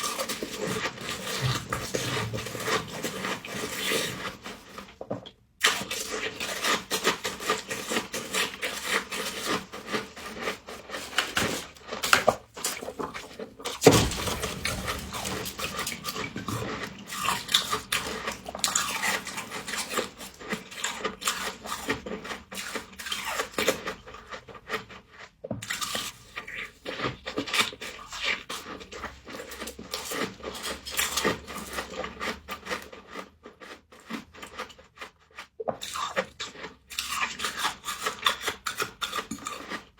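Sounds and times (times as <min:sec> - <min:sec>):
crunching and chewing frost: 0:00.0 - 0:39.9.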